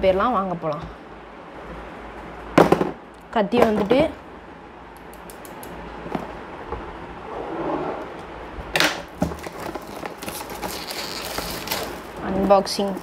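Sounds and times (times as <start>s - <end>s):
packaging ripping: 9.2s - 12.2s
packaging rustling and crinkling: 9.2s - 12.9s.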